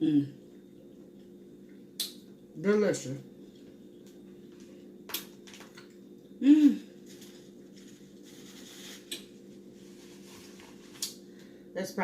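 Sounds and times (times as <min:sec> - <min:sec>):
person humming mm: 0:00.0 - 0:00.4, 0:06.4 - 0:06.9
faint steady hum: 0:00.0 - 0:12.0.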